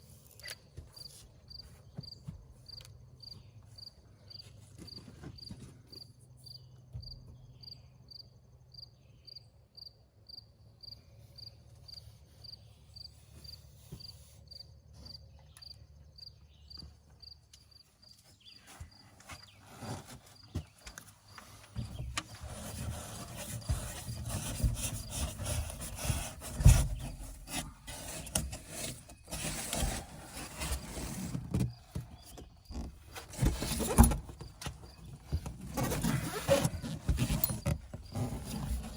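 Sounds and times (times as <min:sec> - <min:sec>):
cricket chirping: 0:05.9 - 0:13.6
rubbing and scraping from handwork: 0:12.1 - 0:14.6, 0:18.2 - 0:38.9.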